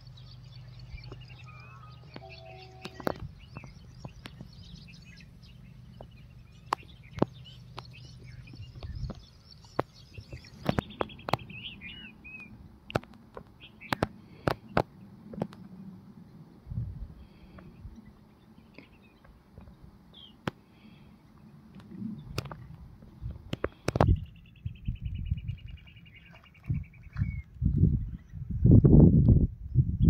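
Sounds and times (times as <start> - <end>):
small birds chirping: 0.0 - 16.6, 17.2 - 28.6
low steady hum: 0.0 - 30.0
sharp clicks and knocks: 12.9 - 15.6.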